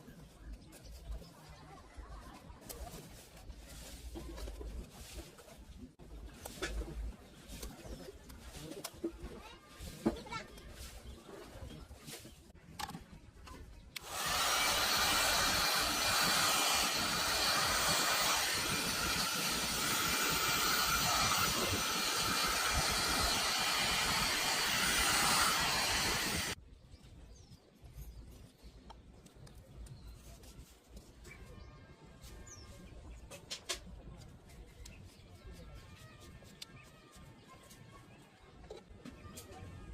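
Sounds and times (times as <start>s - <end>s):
electric power tool hissing: 14.0s - 26.6s.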